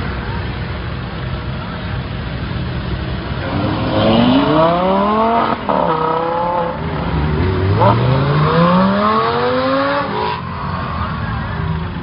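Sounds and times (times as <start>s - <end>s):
sports car accelerating hard: 3.4s - 10.4s.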